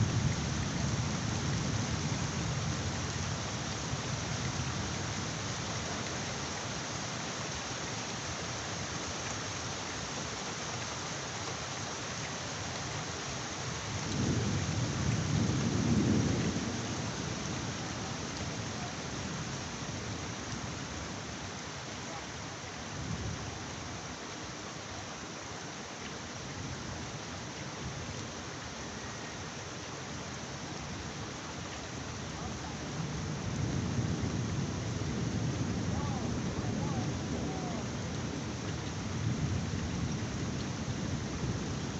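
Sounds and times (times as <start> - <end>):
heavy rain falling: 0.0 - 41.9
low thunder rumble: 14.0 - 19.5.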